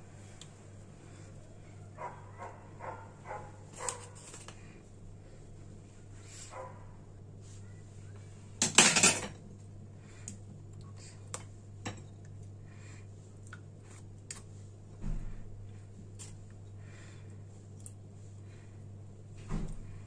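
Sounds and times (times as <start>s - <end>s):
low steady hum: 0.0s - 20.0s
dishes and utensils clattering: 8.6s - 9.4s.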